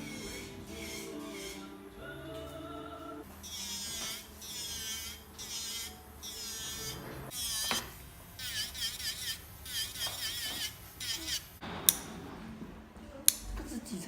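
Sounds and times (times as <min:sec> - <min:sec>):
electric nail drill whining: 0:00.0 - 0:01.7, 0:03.4 - 0:11.6.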